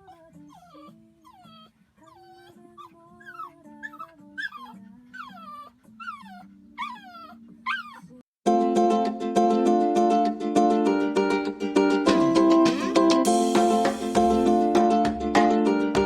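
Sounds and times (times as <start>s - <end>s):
dog whining: 0.0s - 8.2s
soft background music: 0.0s - 8.2s
loud ukulele music: 8.5s - 16.0s.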